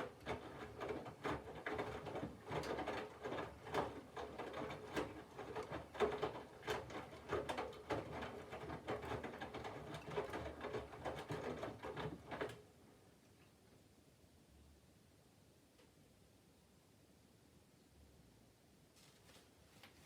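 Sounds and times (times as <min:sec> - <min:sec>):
washing machine drum sloshing: 0:00.0 - 0:12.6.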